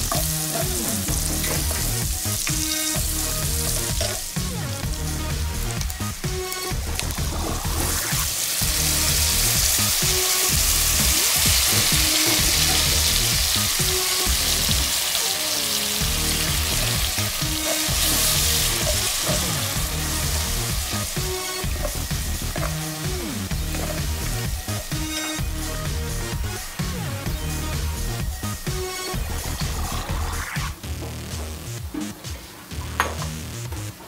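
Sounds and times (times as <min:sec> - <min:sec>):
food sizzling in a hot pot: 0:00.0 - 0:26.8
quiet background music: 0:00.0 - 0:34.0.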